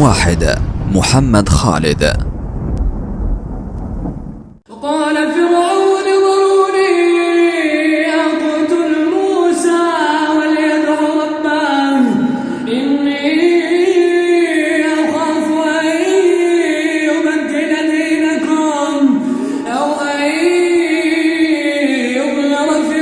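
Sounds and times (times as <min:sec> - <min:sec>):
man reciting melodically: 0:04.7 - 0:23.0.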